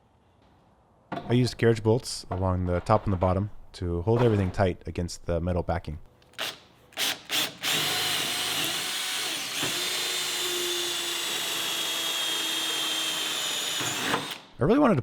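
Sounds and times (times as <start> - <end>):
power drill running: 6.4 - 14.5.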